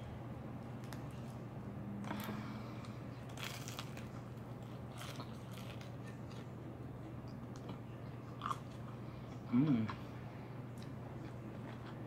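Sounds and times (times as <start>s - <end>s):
chewing crispy fried chicken: 2.0s - 10.1s, 10.7s - 12.0s
breading crunching: 3.3s - 6.5s.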